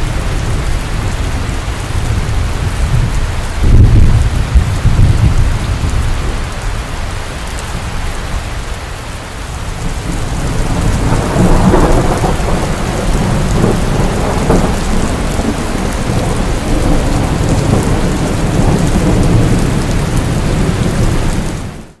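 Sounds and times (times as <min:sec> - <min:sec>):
low rumble of thunder: 0:00.0 - 0:06.7, 0:09.8 - 0:21.9
heavy rainfall: 0:00.0 - 0:22.0.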